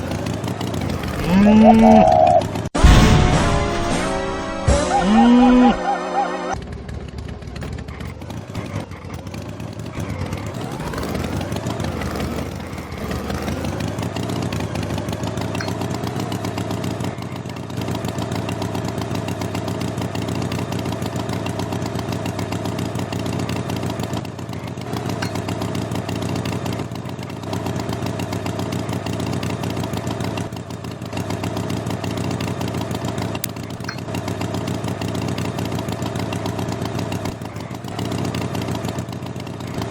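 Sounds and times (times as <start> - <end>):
engine revving: 0.0 - 39.9
high-pitched sound: 1.2 - 6.6.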